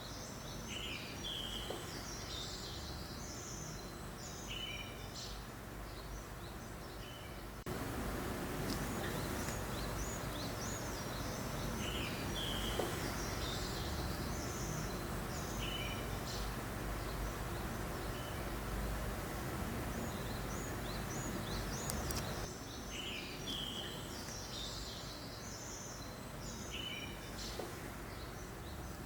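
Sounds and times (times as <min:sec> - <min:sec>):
songbirds chirping: 0:00.0 - 0:29.0
breeze hiss: 0:07.5 - 0:29.0.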